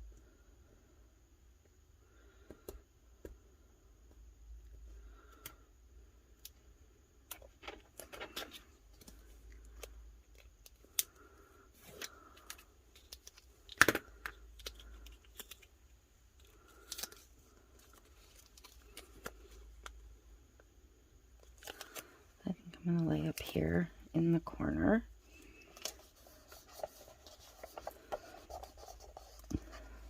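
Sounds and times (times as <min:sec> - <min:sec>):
paper rustling and crinkling: 0:07.4 - 0:09.9, 0:25.4 - 0:30.0.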